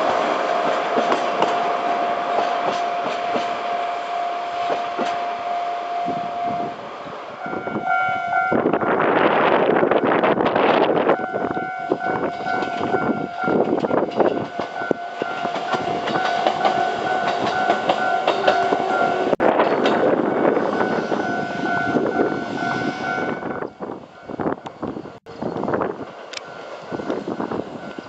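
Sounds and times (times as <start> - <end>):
train wheels clattering over rail joints: 0.0 - 1.7, 2.3 - 3.6, 12.3 - 21.2
level crossing warning bell ringing: 11.1 - 19.4, 20.2 - 24.6, 26.3 - 28.0.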